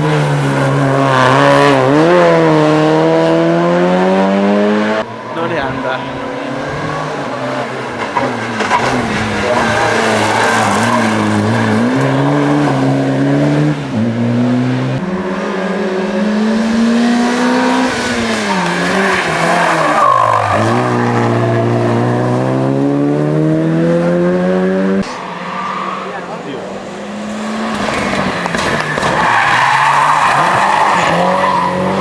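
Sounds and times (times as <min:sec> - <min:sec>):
rally car engine accelerating: 0:00.0 - 0:25.2.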